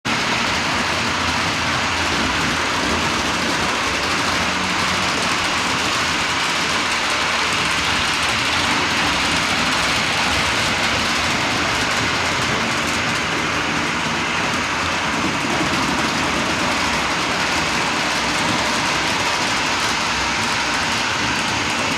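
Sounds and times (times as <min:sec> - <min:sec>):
model train running: 0:00.0 - 0:21.9.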